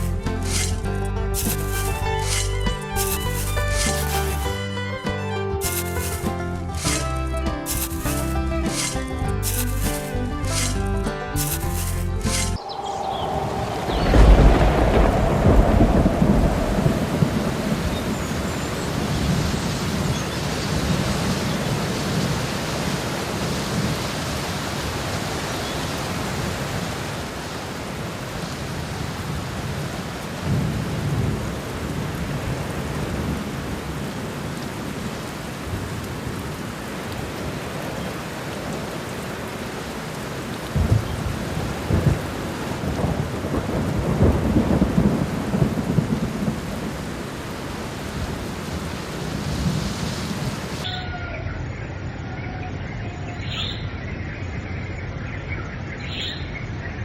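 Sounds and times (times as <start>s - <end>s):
rain hissing: 0.0s - 4.8s, 5.6s - 50.8s
thunder rumbling: 12.2s - 22.4s, 40.7s - 50.6s.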